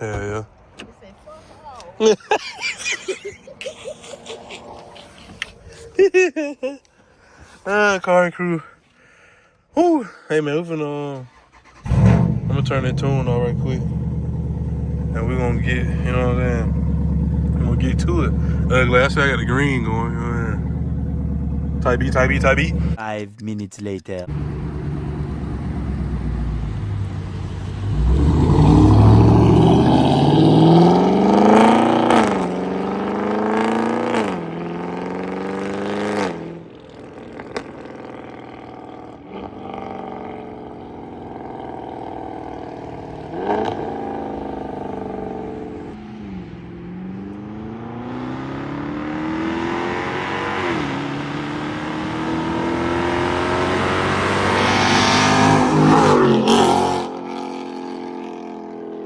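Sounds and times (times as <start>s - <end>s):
car engine accelerating hard: 11.3s - 23.0s, 24.3s - 58.9s.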